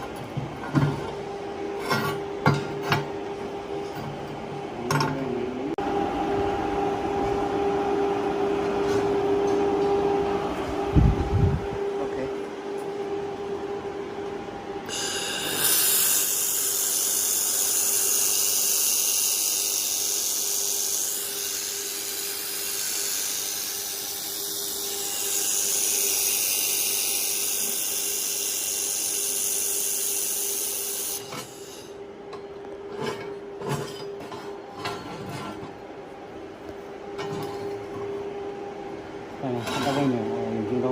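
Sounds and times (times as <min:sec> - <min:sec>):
cooling fan hum: 0:00.0 - 0:40.9
laser welder hissing: 0:14.9 - 0:32.0.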